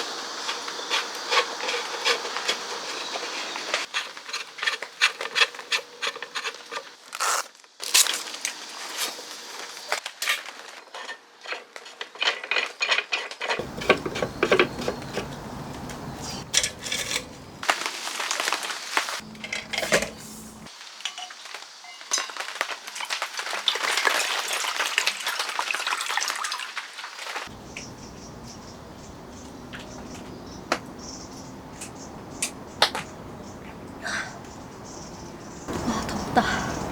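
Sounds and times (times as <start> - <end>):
cookware and utensils clattering: 11.0 - 17.6.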